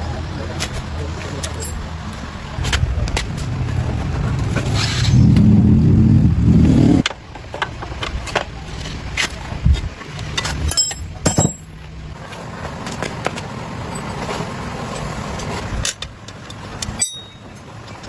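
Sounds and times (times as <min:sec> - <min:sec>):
engine running loudly: 0:00.0 - 0:07.6
sharp metallic clatter: 0:08.2 - 0:11.9, 0:15.8 - 0:17.7.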